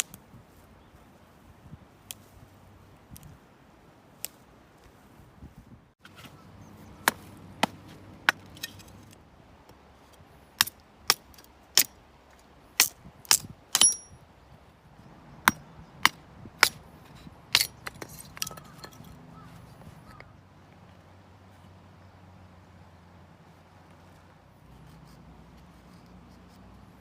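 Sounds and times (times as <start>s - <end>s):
hard objects clicking and knocking: 15.5s - 19.3s.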